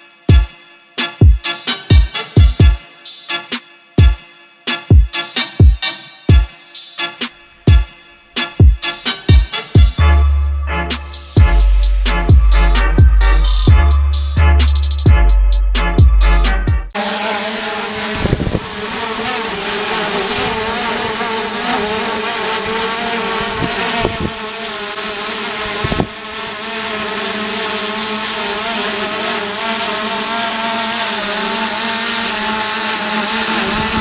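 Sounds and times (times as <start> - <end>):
drone propellers buzzing: 10.9 - 34.0
thumps on microphone: 18.2 - 18.7, 23.6 - 24.4, 25.8 - 26.2.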